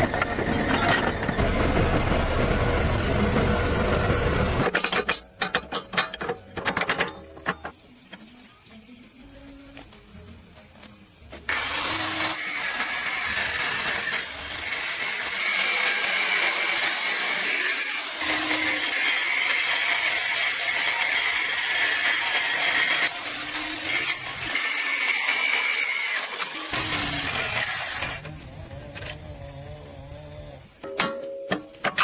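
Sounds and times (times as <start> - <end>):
power tool running: 0.0 - 4.7, 11.5 - 28.3.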